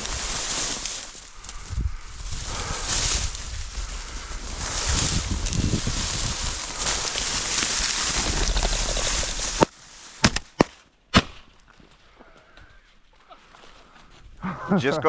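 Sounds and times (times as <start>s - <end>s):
wind buffeting microphone: 1.4s - 9.7s.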